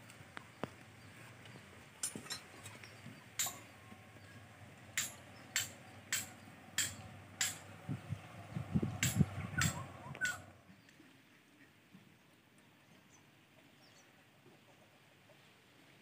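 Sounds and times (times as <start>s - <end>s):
sharp metallic clinks: 3.4s - 3.7s, 5.0s - 7.7s.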